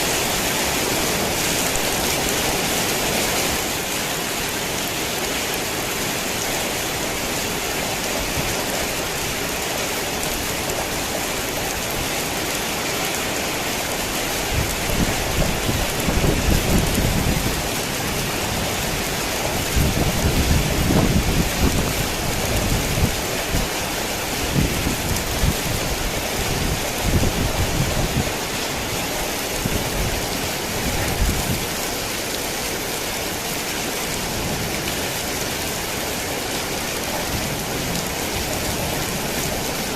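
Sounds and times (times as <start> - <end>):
heavy rain hissing: 0.0 - 39.9
thunder rumbling: 14.5 - 23.8.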